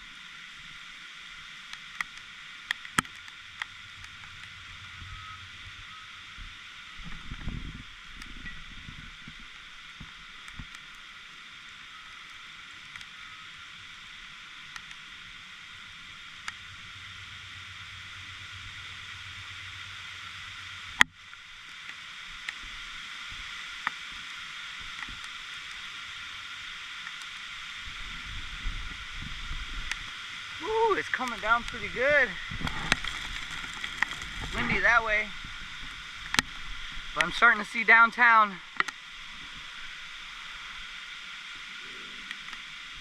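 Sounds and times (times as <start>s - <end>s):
muffled heavy rain: 0.0s - 43.0s
raindrops ticking on a case: 29.8s - 35.2s.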